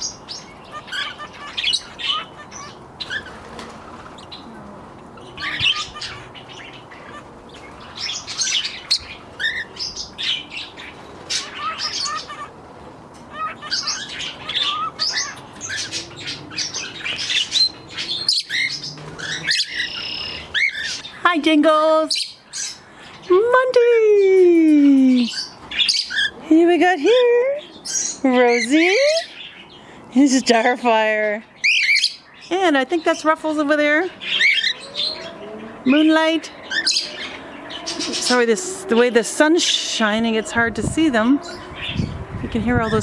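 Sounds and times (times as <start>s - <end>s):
parakeets chirping and squawking: 0.0s - 23.4s, 25.1s - 43.0s
low background noise: 0.0s - 43.0s.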